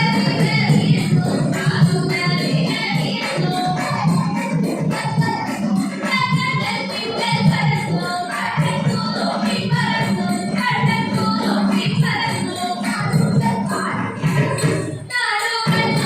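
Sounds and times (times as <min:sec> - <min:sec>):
drum beat: 0:00.0 - 0:16.0.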